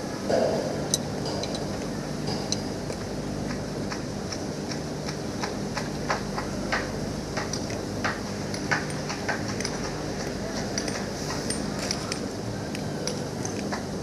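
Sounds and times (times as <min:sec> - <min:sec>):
steady low hum: 0:00.0 - 0:14.0
hand tools clicking on metal: 0:00.9 - 0:03.0, 0:07.4 - 0:13.9.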